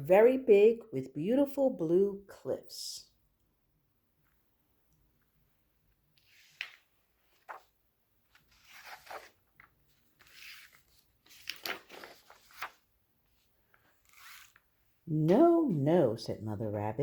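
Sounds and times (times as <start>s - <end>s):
paper pages turning: 6.2s - 14.8s.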